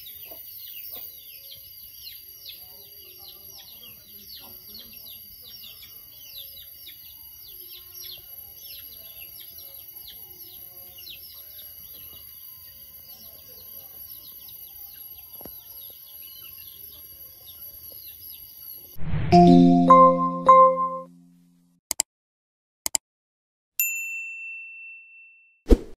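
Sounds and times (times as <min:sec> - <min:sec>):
small birds chirping: 0:00.0 - 0:18.9
outdoor background noise: 0:00.0 - 0:19.3.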